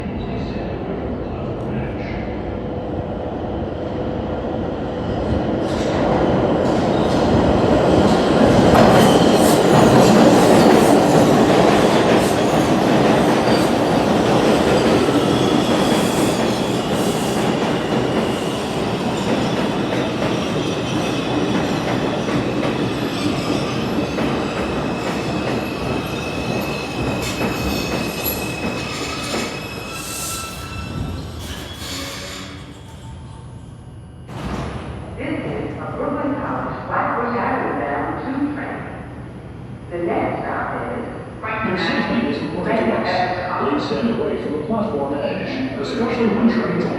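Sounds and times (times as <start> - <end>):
subway train wheels clattering: 0.0 - 37.5.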